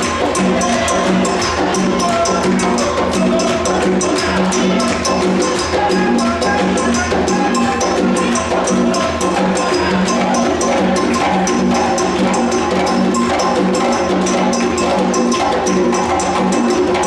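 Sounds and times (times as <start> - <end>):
pitched drums: 0.0 - 17.0.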